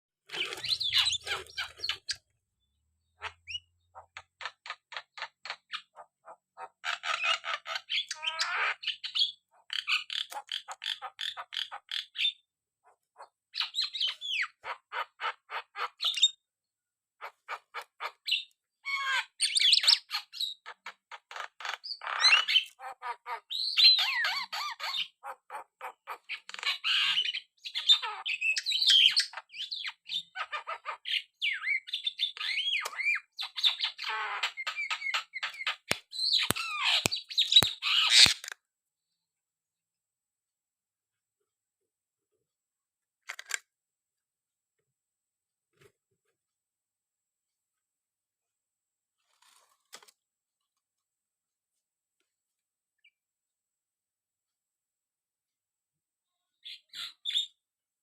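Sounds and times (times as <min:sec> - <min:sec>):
myna calling: 0:00.3 - 0:02.2.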